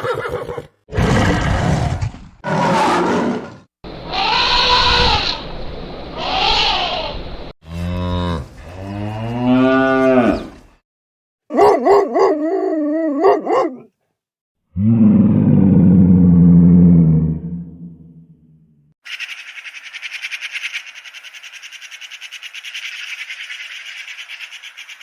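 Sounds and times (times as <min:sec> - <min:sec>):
cattle mooing: 0:07.7 - 0:10.5.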